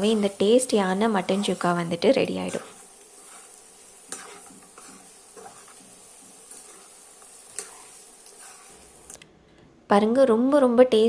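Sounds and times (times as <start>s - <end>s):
faint sizzle: 0.0s - 11.0s
spoon scraping and clicking on pan: 2.4s - 9.2s.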